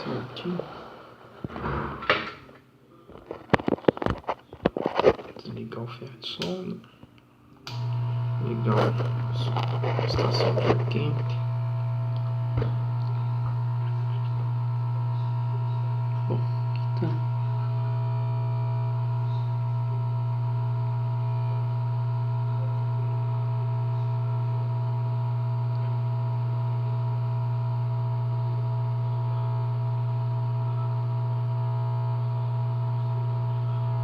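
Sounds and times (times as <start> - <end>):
hot-air blower humming: 7.6 - 34.0.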